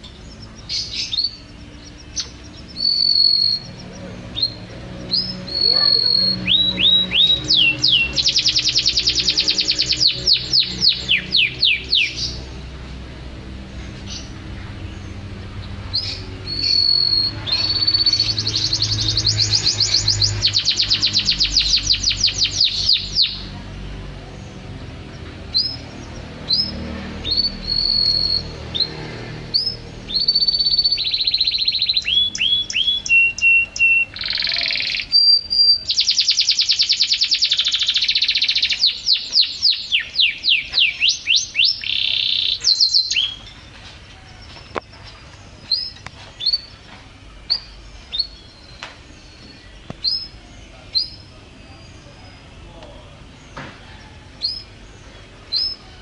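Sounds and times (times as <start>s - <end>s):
songbird singing whistles: 0.1s - 12.4s, 15.9s - 23.4s, 26.5s - 29.0s, 29.6s - 43.6s, 45.6s - 46.8s, 47.5s - 52.1s, 55.5s - 55.9s.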